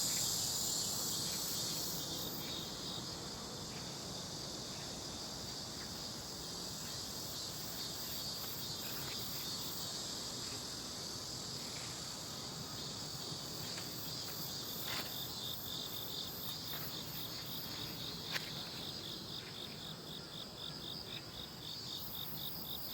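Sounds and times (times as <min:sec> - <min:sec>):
insects trilling: 0:00.0 - 0:22.9
lower cricket chirp: 0:00.0 - 0:22.9.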